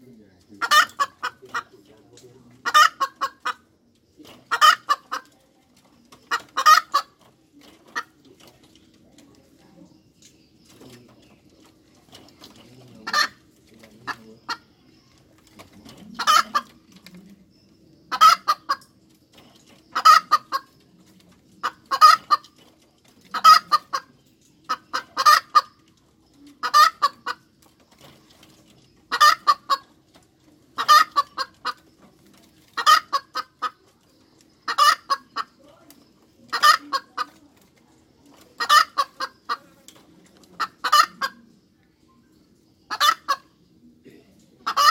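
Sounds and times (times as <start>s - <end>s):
hen cackling: 0.5s - 1.9s, 2.5s - 3.7s, 4.4s - 5.3s, 6.1s - 7.2s, 13.0s - 14.7s, 15.9s - 16.9s, 18.1s - 19.0s, 19.8s - 20.8s, 21.6s - 22.6s, 23.2s - 25.8s, 26.5s - 27.5s, 29.1s - 30.0s, 30.8s - 31.8s, 32.7s - 33.9s, 34.6s - 37.6s, 38.3s - 39.8s, 40.5s - 41.5s, 42.9s - 43.6s, 44.6s - 44.9s.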